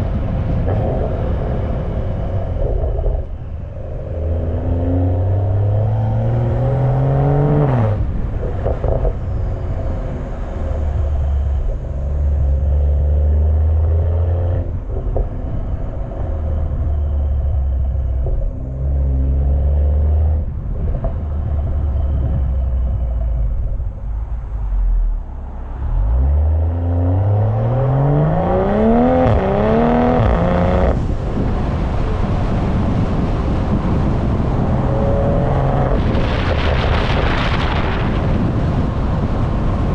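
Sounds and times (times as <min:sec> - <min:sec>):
car exhaust revving: 0:00.0 - 0:39.9
wind rushing over microphone: 0:00.0 - 0:39.9.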